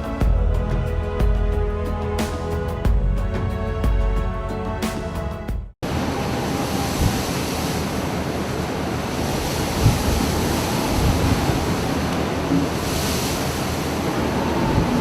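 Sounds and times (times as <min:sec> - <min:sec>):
storm wind and heavy seas: 0:05.8 - 0:15.0
wind buffeting microphone: 0:06.7 - 0:07.6, 0:09.2 - 0:15.0.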